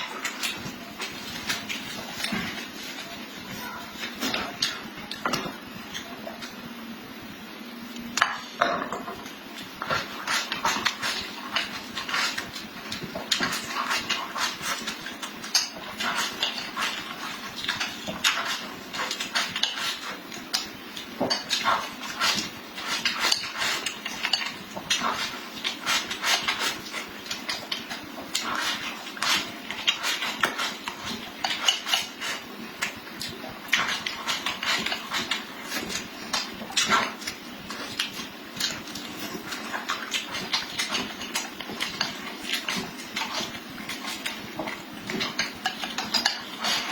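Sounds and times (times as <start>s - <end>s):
chewing food: 9.6s - 46.9s
utensils clicking on dish: 37.9s - 46.9s.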